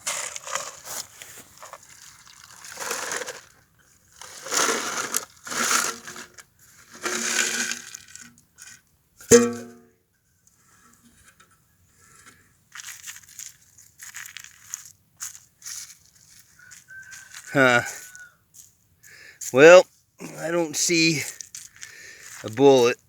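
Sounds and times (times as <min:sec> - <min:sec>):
ice rattling in tin can: 0:00.0 - 0:03.6, 0:04.2 - 0:08.8
sharp metallic knock: 0:09.3 - 0:09.9.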